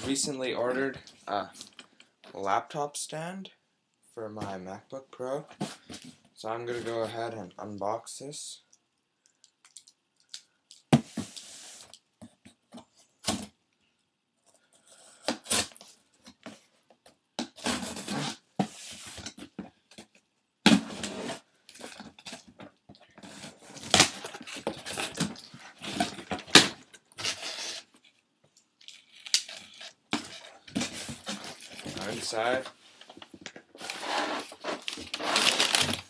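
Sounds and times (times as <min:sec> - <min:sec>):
tape and cardboard tearing: 0:15.2 - 0:15.9, 0:17.4 - 0:18.4, 0:23.2 - 0:27.9, 0:33.8 - 0:36.0
cardboard flaps scraping and rustling: 0:30.2 - 0:36.0.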